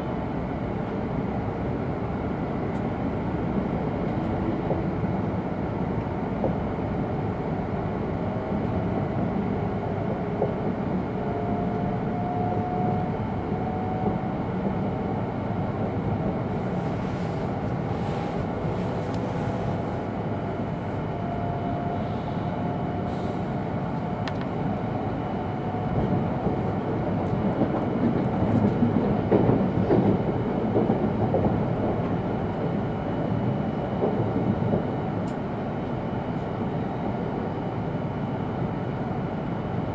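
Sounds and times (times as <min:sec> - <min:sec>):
train wheels rumbling on rail: 0:00.0 - 0:39.8
air noise: 0:16.3 - 0:24.0.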